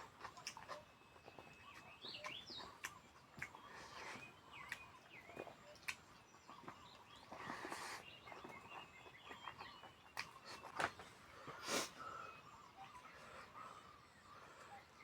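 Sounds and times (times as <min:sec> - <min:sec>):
mouth noises from eating: 0:00.0 - 0:10.8
birds chirping: 0:00.0 - 0:15.0.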